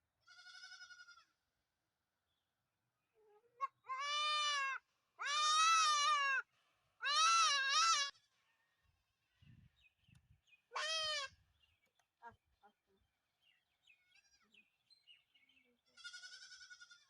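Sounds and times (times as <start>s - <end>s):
goat bleating: 0.2s - 1.3s, 15.9s - 17.0s.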